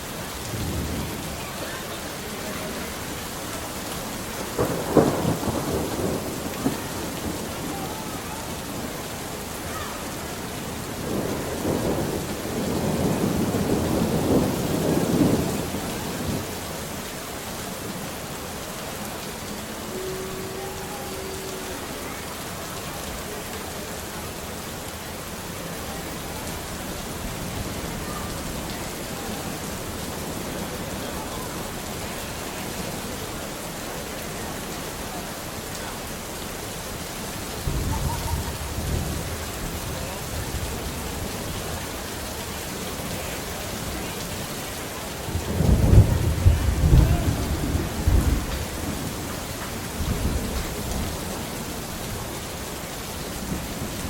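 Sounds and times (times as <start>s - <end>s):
steady rain falling: 0.0s - 54.0s
thunder crack and rumble: 0.4s - 1.6s, 4.4s - 9.2s, 10.6s - 16.8s, 37.6s - 41.5s, 45.2s - 52.1s.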